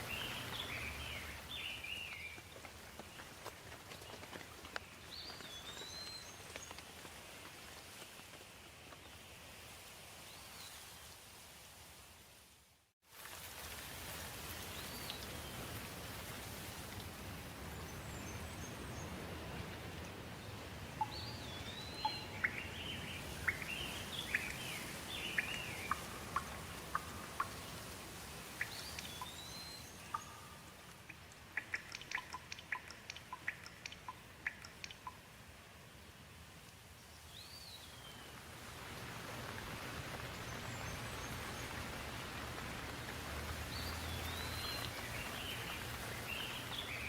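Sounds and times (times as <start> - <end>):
birds singing: 0.0 - 2.6, 20.4 - 27.8, 28.6 - 30.7, 43.6 - 47.0
steady rain falling: 0.0 - 47.0.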